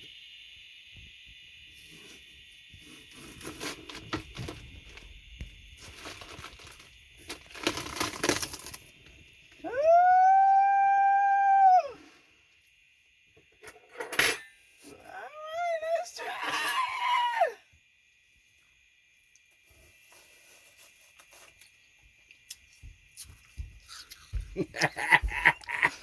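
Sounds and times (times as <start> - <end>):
crackling and crunching: 3.0 - 9.6
loud howl-like call: 9.6 - 12.1.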